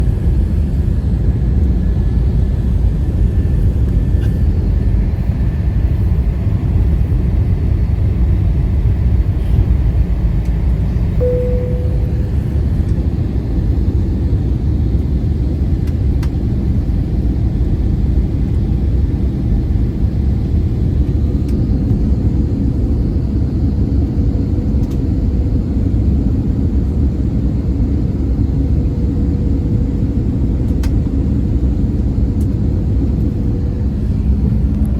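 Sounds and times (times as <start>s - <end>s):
aircraft engine and airflow rumble: 0.0s - 34.9s
faint steady hum: 10.9s - 13.8s
short clear tone: 11.2s - 12.8s.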